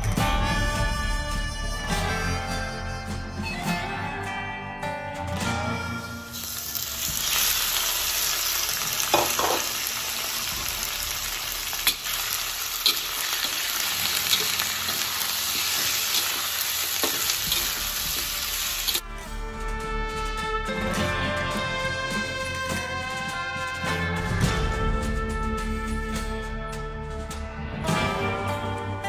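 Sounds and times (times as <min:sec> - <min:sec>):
chicken sizzling in hot oil: 0:06.3 - 0:19.0
metal spatula scraping pan: 0:10.9 - 0:19.0.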